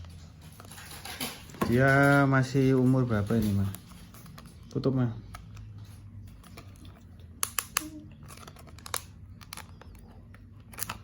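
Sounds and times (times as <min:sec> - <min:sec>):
packaging crinkling: 0:06.1 - 0:11.0.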